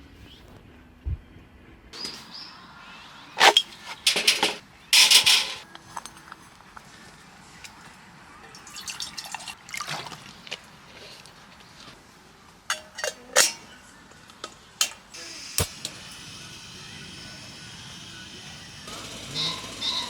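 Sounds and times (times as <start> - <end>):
cookware and utensils clinking: 3.4 - 6.4, 12.7 - 13.9
steady hiss: 14.9 - 20.0.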